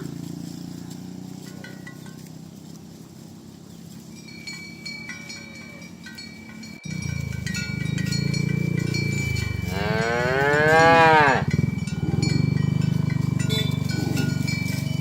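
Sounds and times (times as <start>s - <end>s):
cattle mooing: 6.9s - 15.0s.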